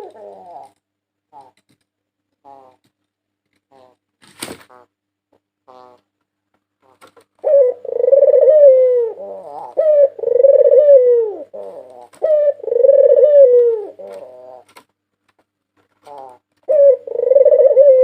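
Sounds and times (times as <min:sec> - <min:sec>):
dove cooing: 0:00.0 - 0:01.6, 0:07.4 - 0:14.8, 0:16.0 - 0:18.0.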